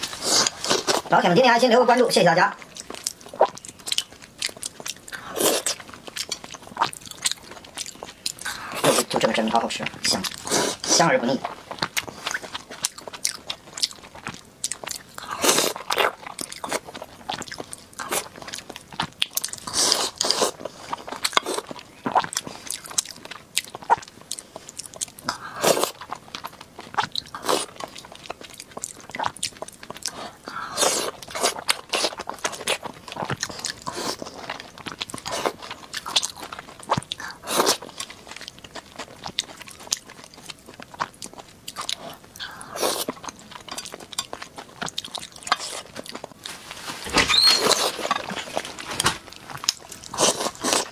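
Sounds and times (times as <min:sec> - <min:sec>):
person chewing and biting food: 0:00.0 - 0:01.1, 0:25.7 - 0:50.9.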